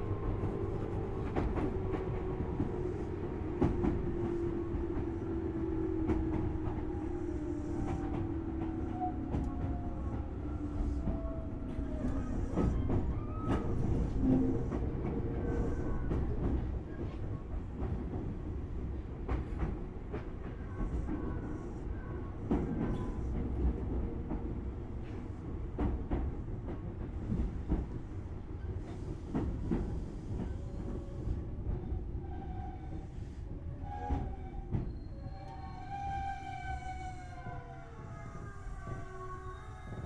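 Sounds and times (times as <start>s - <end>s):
train rumble inside car: 0.0s - 40.0s
faint short squeals: 34.0s - 40.0s.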